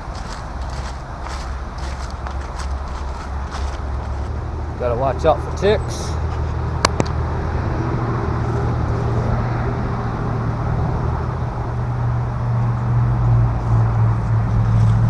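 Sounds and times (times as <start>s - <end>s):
tyre noise: 0.0s - 6.6s, 13.7s - 15.0s
road traffic rumble: 0.0s - 15.0s.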